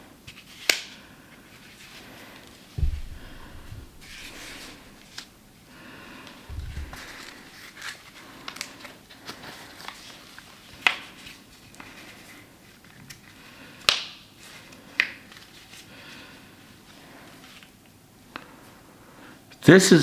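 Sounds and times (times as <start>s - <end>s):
fabric rustling: 2.8s - 5.6s, 6.5s - 7.5s.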